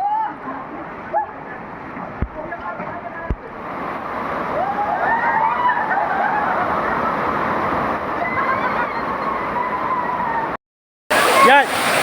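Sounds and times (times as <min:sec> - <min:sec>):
waterfall and stream rushing: 0:00.3 - 0:08.2, 0:11.1 - 0:12.0.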